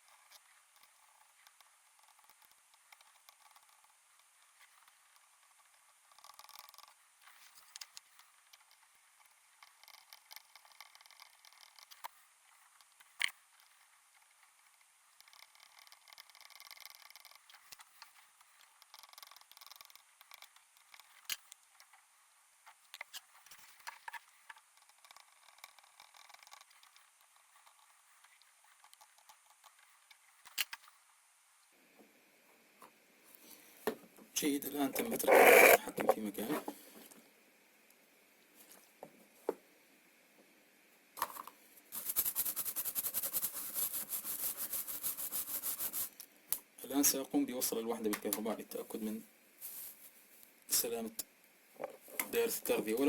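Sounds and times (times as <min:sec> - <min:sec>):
faint hiss: 0:29.9 - 0:53.0
scratchy rubbing strokes: 0:34.8 - 0:36.0, 0:41.9 - 0:46.2.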